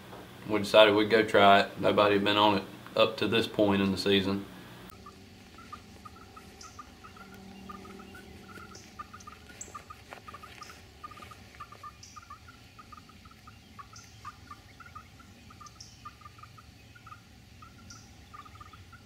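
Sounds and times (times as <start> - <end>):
birds chattering: 0.2 - 19.0
high bird chirp: 4.9 - 19.0.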